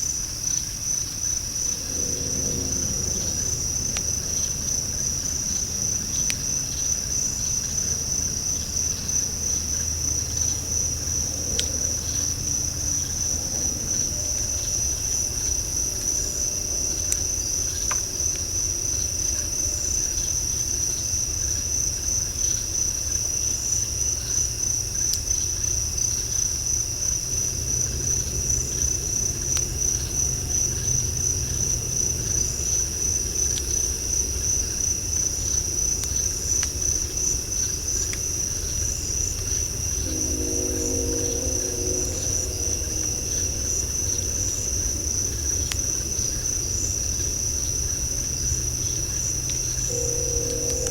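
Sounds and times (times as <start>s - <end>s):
insects trilling: 0.0s - 50.9s
low rumble: 1.0s - 17.4s, 26.5s - 34.4s, 37.8s - 50.9s.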